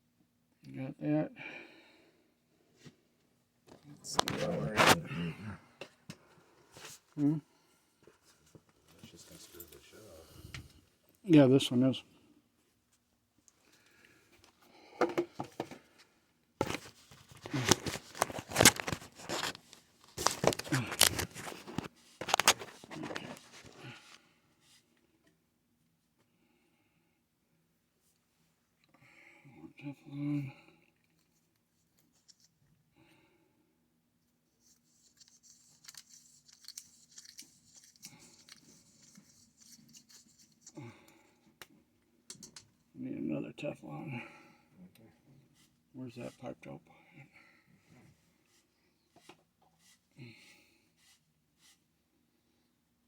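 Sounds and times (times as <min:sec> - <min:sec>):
scraping and crinkling handling noise: 0:03.6 - 0:05.2, 0:16.6 - 0:24.3, 0:34.6 - 0:40.8.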